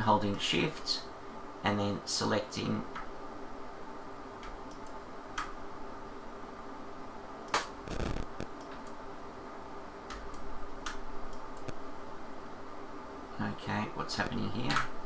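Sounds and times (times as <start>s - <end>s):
faint steady hum: 0.0s - 15.0s
computer mouse clicking: 4.4s - 5.6s, 7.5s - 9.0s, 10.1s - 11.8s, 14.7s - 15.0s.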